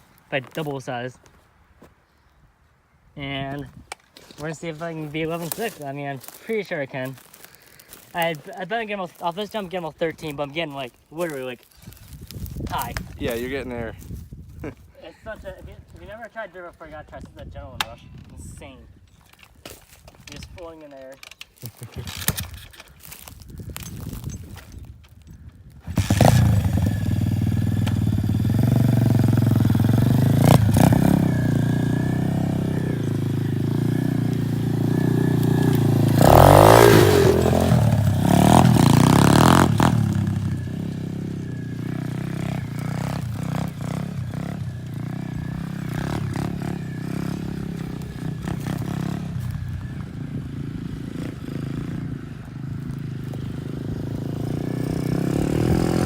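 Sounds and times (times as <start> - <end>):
dirt bike engine revving: 25.8 - 56.0.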